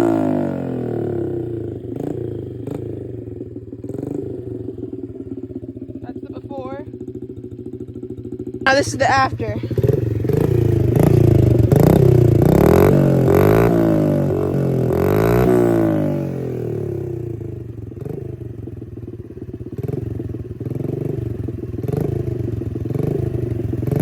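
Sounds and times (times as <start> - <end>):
small motorbike engine revving: 0.0 - 4.9, 8.7 - 18.4, 19.7 - 24.0.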